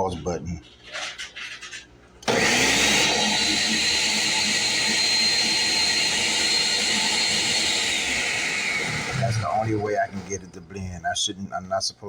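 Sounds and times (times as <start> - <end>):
blender motor whining: 2.2 - 10.5.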